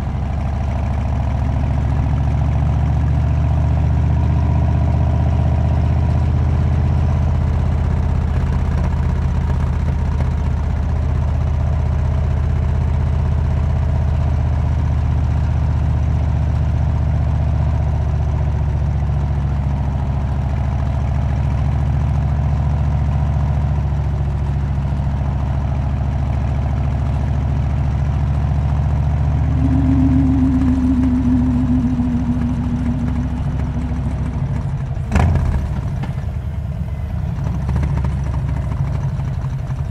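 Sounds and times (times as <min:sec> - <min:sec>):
high-pitched hum: 0:28.7 - 0:36.3
motorcycle engine running: 0:28.9 - 0:39.9.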